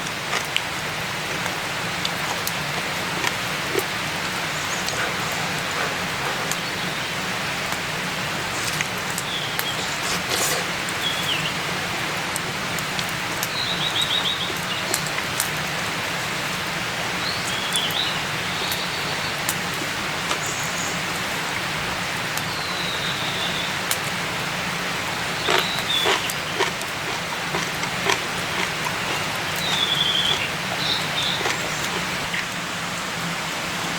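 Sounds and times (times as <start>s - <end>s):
steady hiss like rain: 0.0s - 33.9s
small bird chirping and trilling: 28.8s - 32.0s.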